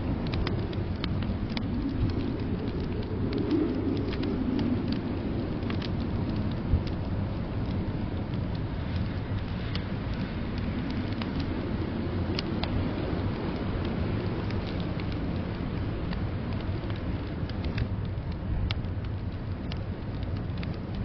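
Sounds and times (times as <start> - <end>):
blizzard wind rumbling: 0.0 - 21.0
wood fire crackling: 0.0 - 21.0.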